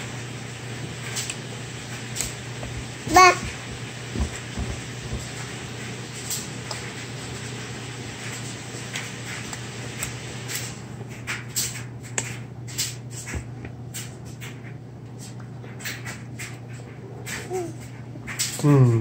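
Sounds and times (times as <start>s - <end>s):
baby eating clicks and taps: 9.3s - 18.6s.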